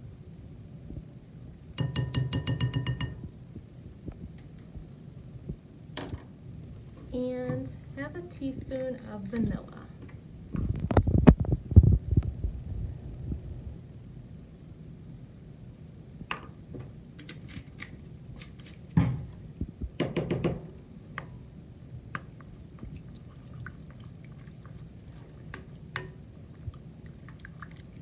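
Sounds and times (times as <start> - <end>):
spoon clinking in mixing bowl: 1.8 - 3.3.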